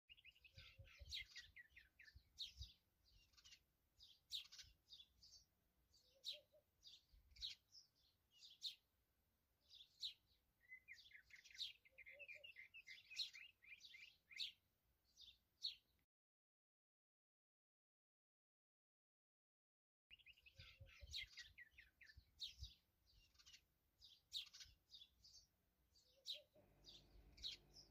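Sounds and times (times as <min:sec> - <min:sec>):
small birds chirping: 0:00.1 - 0:16.0, 0:20.1 - 0:27.9.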